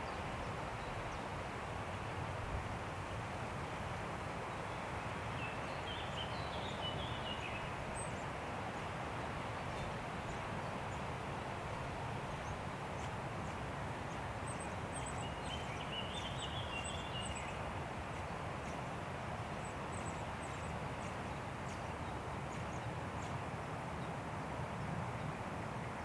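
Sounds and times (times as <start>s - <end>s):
wind through forest trees: 0.0s - 26.0s.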